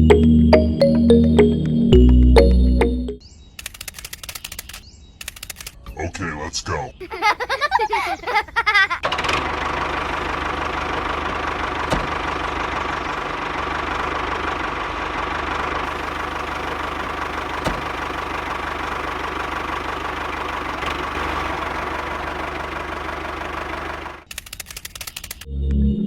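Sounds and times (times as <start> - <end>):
sharp click: 3.6 - 5.8, 24.3 - 25.5.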